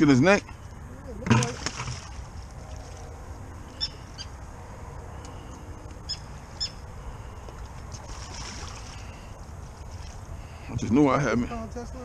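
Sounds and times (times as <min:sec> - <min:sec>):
water birds calling: 0:00.0 - 0:11.6.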